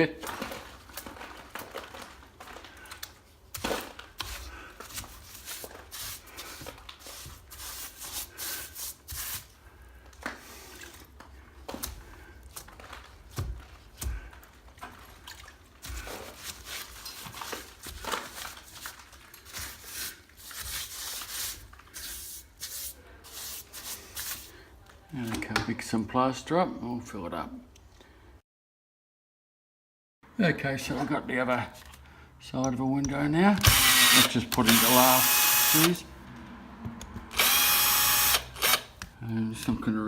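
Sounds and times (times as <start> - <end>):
wet dabbing and rubbing: 3.5 - 9.6, 11.8 - 24.6.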